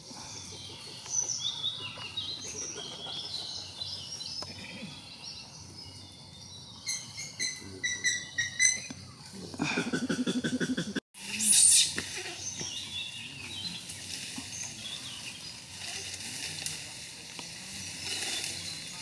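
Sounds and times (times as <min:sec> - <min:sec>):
birds whistling: 0:06.8 - 0:09.0.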